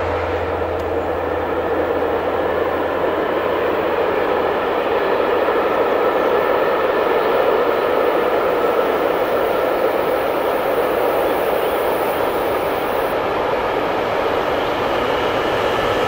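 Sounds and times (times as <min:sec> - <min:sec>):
freight train on rails: 0:00.0 - 0:16.0.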